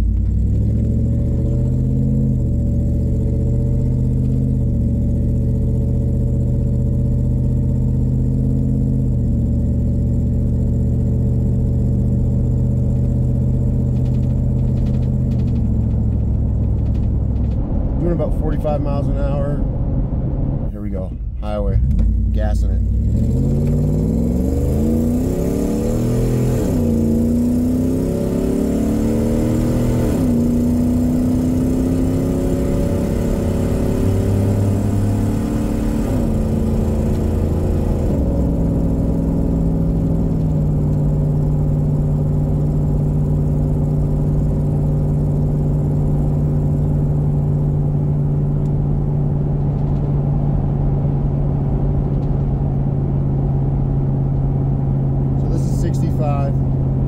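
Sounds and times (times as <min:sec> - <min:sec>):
engine accelerating from inside cab: 0:00.0 - 0:57.0.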